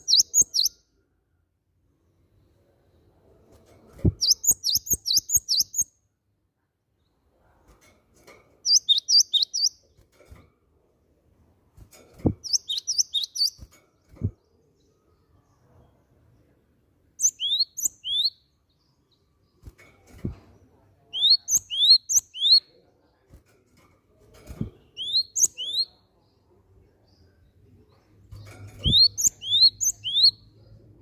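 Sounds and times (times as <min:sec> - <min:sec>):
bird sharp rising chirps: 0:28.8 - 0:30.4.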